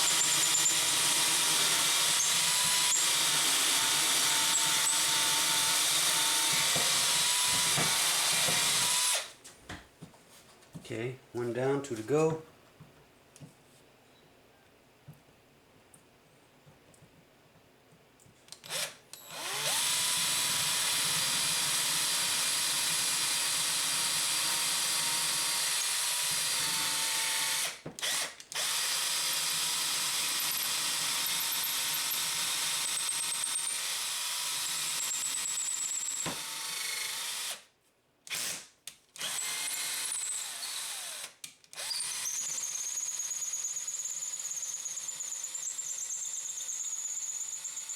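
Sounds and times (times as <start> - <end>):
electric drill whining: 0.0 - 9.3, 18.6 - 37.7, 39.2 - 47.9.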